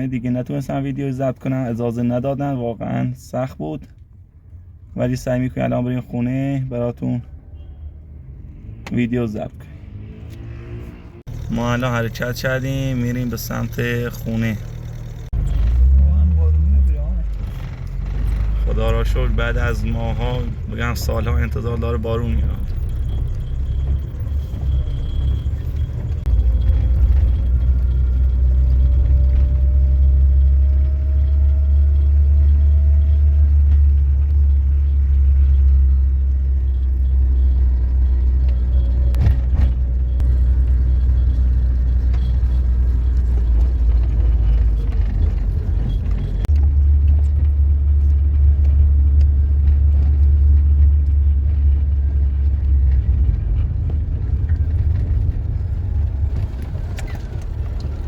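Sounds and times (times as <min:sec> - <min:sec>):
car cabin rumble: 0:11.1 - 0:58.0.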